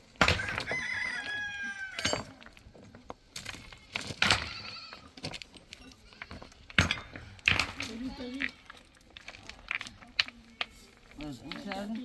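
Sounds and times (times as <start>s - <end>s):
rooster crowing: 0.3s - 2.1s.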